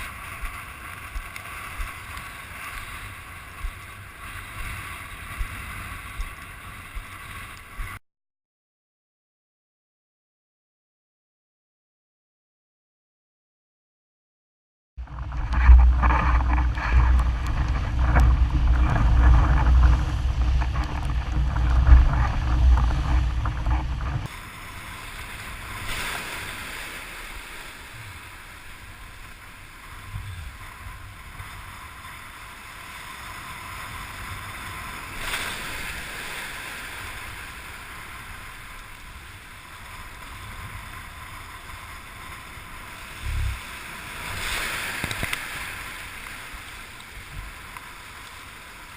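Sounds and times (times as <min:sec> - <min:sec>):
wind buffeting microphone: 0:15.0 - 0:29.3
water rushing past board: 0:15.0 - 0:48.9.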